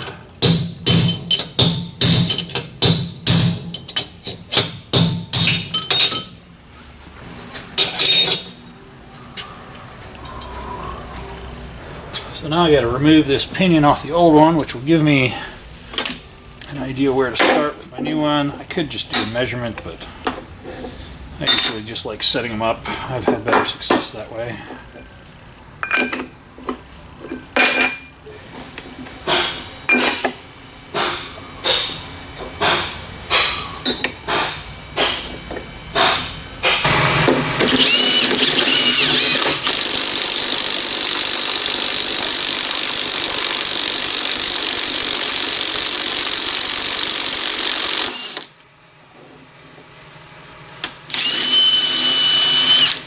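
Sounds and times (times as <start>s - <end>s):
metal tools clanking: 5.5s - 6.4s, 7.8s - 8.7s, 12.2s - 16.8s, 20.6s - 21.9s, 25.8s - 28.1s
metal parts clinking and knocking: 7.8s - 8.5s.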